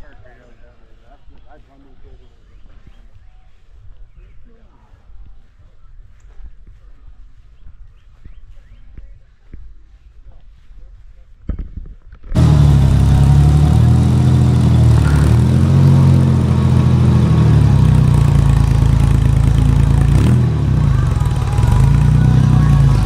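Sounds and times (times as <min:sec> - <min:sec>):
car engine idling: 0:12.4 - 0:23.0.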